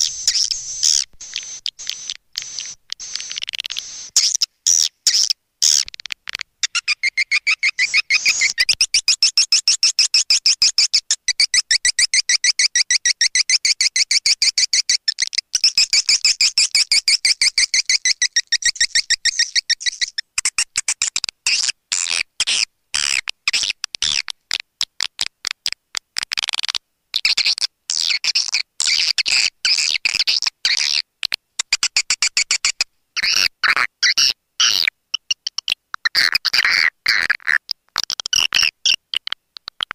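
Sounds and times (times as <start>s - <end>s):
swiftlets twittering: 0.0s - 4.4s.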